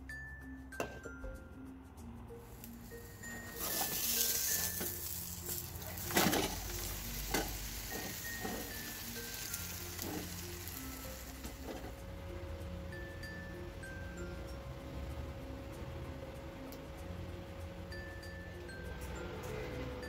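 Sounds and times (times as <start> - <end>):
pastry sizzling in a frying pan: 2.4 - 15.0.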